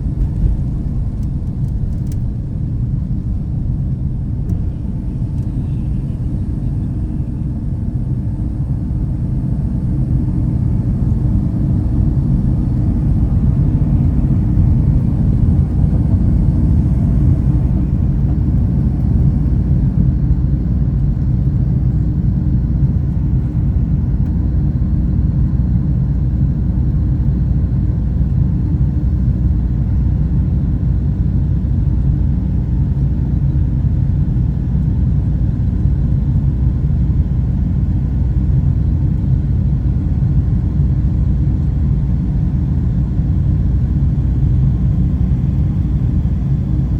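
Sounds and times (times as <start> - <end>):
jet engines rumbling: 0.0 - 30.0, 30.8 - 46.9.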